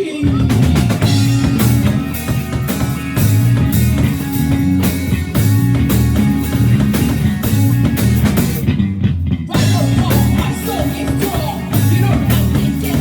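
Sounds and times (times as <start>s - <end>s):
person singing: 0.0s - 3.4s, 9.5s - 13.0s
rock band playing: 0.0s - 13.0s.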